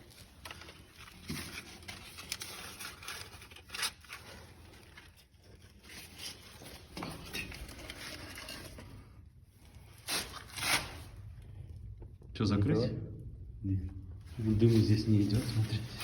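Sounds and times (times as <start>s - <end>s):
kindling crackling in a fireplace: 0.0s - 12.5s.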